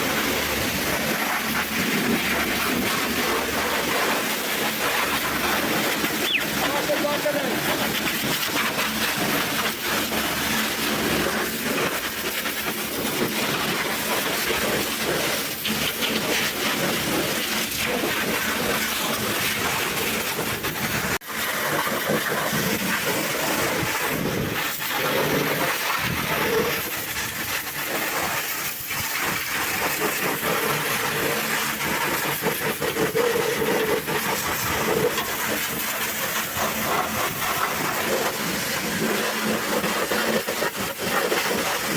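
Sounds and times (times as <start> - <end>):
pressure washer spraying water: 0.0 - 41.9.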